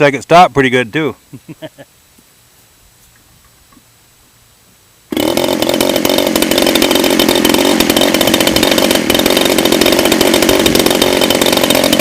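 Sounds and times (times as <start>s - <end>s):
two-stroke engine running: 5.1s - 12.0s.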